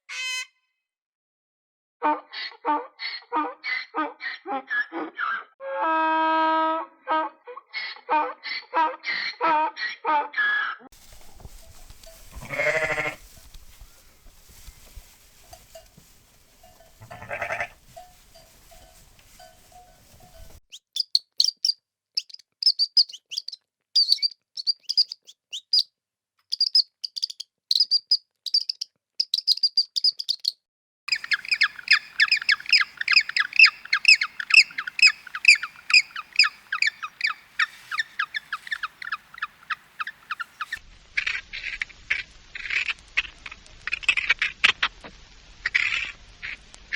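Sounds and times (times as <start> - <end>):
high-pitched bird chirps: 0.1 - 0.5, 20.7 - 25.9, 26.5 - 40.8
farm animal bleat: 12.2 - 13.3, 16.7 - 18.1
rapid bird calls: 31.1 - 44.9.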